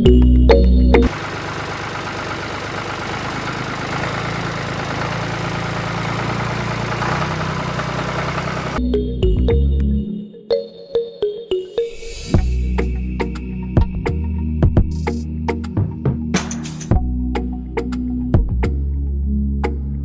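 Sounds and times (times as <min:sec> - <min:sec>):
music: 0:00.0 - 0:01.1, 0:08.8 - 0:20.0.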